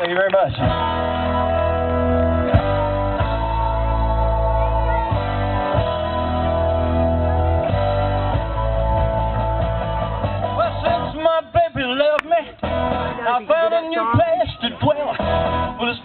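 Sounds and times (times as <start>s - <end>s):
bass chords: 0.5s - 16.0s
guitar chords: 0.5s - 16.0s.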